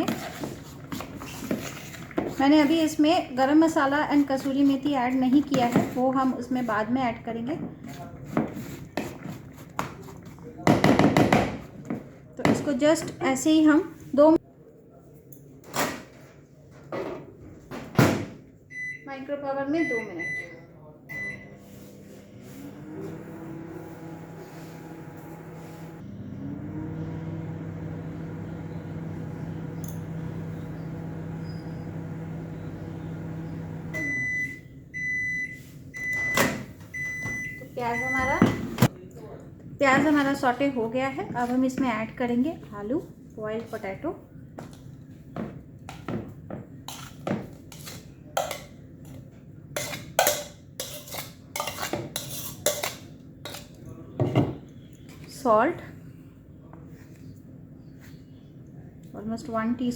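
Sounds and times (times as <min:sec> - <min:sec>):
spoon scraping a bowl: 0:00.0 - 0:03.0, 0:07.8 - 0:10.4, 0:46.9 - 0:49.2, 0:49.8 - 0:53.8
microwave beeps: 0:18.7 - 0:19.1, 0:19.8 - 0:21.6, 0:30.0 - 0:38.8
microwave oven humming: 0:21.1 - 0:35.4.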